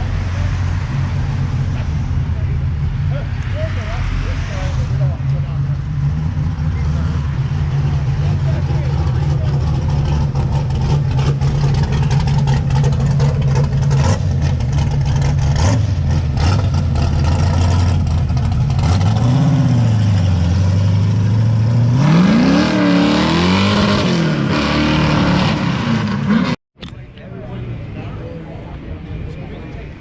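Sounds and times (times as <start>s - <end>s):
car engine idling: 0.0s - 19.3s
car engine revving: 0.0s - 26.6s.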